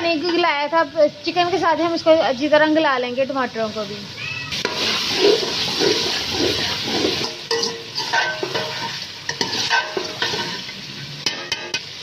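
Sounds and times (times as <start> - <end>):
curry sizzling in a metal pot: 0.0 - 12.0
metal ladle scraping a pot: 4.6 - 12.0.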